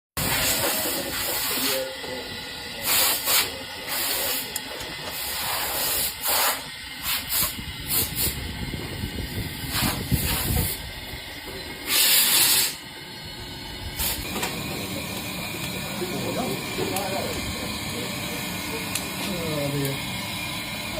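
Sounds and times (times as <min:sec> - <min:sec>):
short hissing bursts: 0:00.2 - 0:01.9, 0:02.8 - 0:04.5, 0:05.1 - 0:08.4, 0:09.6 - 0:10.9, 0:11.8 - 0:12.9, 0:14.0 - 0:14.3
locomotive rumbling: 0:06.7 - 0:20.9.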